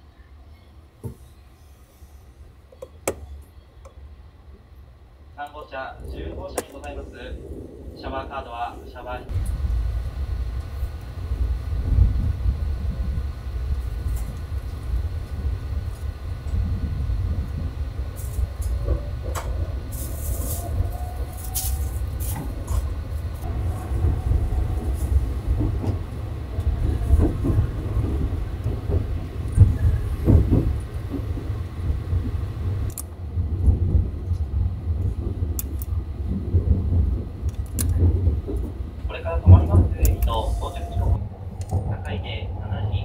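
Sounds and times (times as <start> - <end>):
train rumbling: 0.0 - 43.0
faint rising whine: 5.7 - 30.0.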